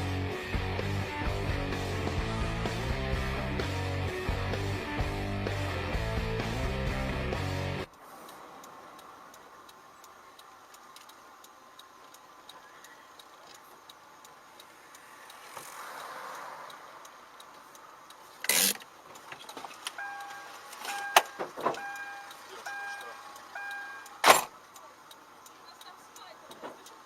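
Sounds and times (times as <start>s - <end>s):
soft regular ticking: 7.9s - 27.0s
car cabin noise: 17.2s - 27.0s
short electronic beeps: 20.0s - 24.2s.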